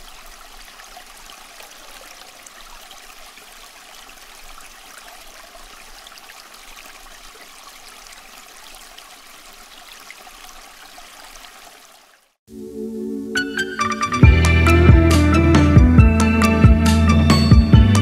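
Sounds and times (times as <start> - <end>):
water trickling in fountain: 0.0 - 12.4
music: 12.5 - 18.0.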